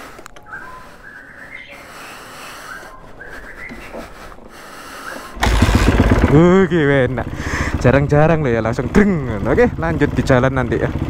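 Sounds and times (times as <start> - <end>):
bird chirping: 0.3 - 5.4.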